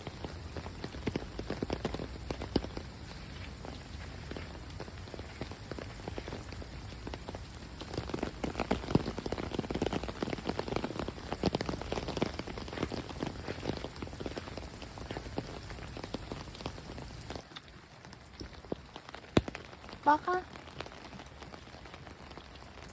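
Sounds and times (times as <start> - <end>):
heavy rain pattering: 0.0 - 22.9
raindrop hits close by: 0.0 - 22.9.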